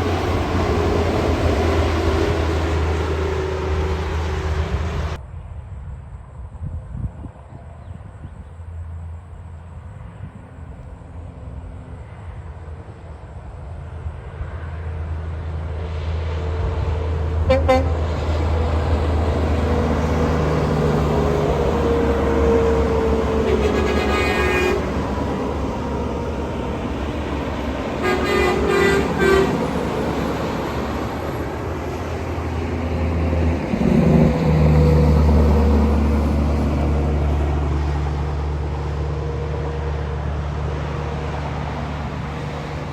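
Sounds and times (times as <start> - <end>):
truck horn: 0.0 - 5.2, 17.4 - 18.7, 21.2 - 25.4, 27.9 - 30.1
trucks driving past: 0.0 - 5.2, 8.6 - 42.9.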